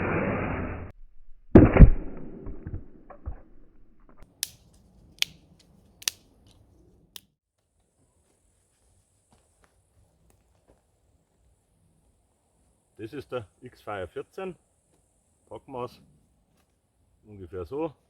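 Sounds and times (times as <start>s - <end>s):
dry sticks snapping: 4.2s - 6.6s.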